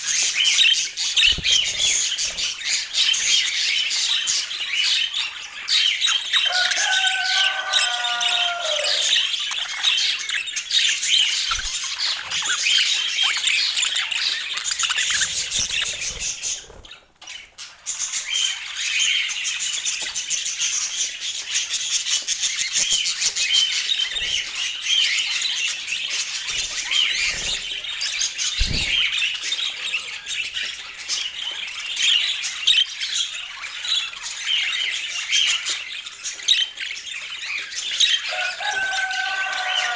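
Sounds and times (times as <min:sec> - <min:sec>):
budgerigars chattering: 0:00.0 - 0:19.5.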